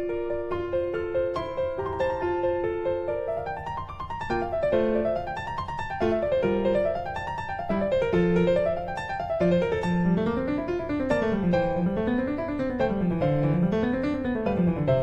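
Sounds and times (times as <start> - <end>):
piano arpeggios over bass line: 0.0 - 15.0.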